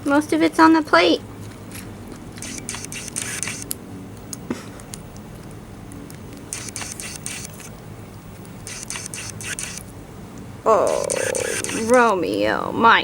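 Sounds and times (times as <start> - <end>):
lizard crunching eggshell: 10.8 - 12.0.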